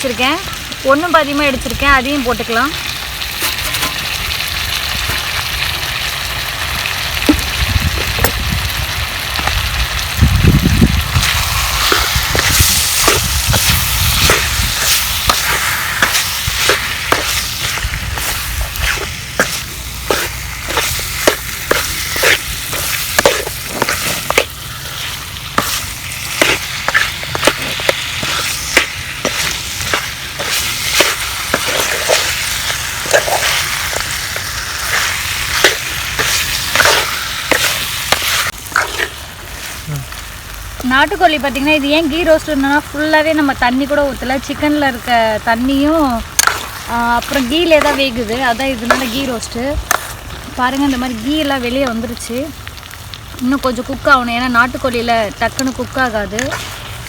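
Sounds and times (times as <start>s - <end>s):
chicken sizzling in a pan: 0.0s - 57.0s
spatula scraping a pan: 3.3s - 4.1s, 11.2s - 39.8s, 46.3s - 50.4s, 56.3s - 57.0s.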